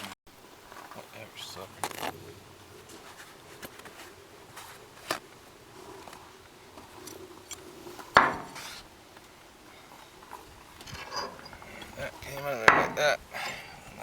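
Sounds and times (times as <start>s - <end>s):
metal part clinking when set down: 10.3s - 13.0s.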